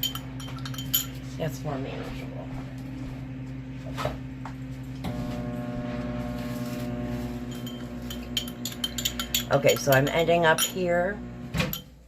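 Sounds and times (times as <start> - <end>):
light clinks: 0.0 - 1.2
microwave buzz: 0.0 - 12.0
microwave oven humming: 2.2 - 12.0.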